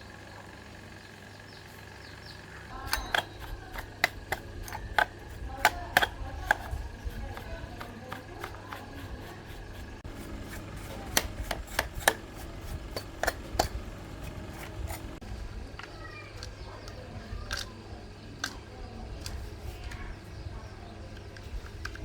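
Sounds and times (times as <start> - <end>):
low steady hum: 0.0 - 22.0
hand tools clicking and tapping: 2.7 - 15.2.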